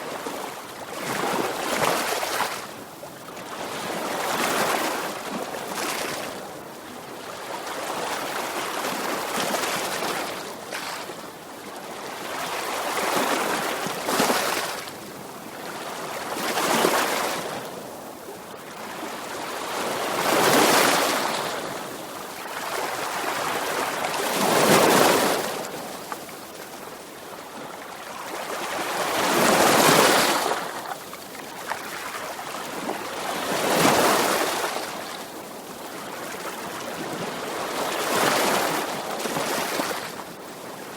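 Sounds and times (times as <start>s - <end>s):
sea waves breaking on shore: 18.7s - 40.9s.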